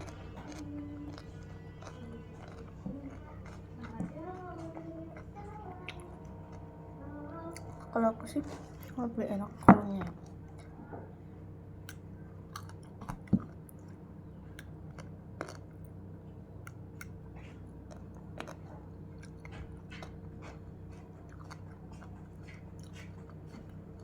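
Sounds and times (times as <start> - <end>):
chewing raw vegetables: 0.0 - 11.1, 11.8 - 24.0
steady low hum: 0.0 - 24.0.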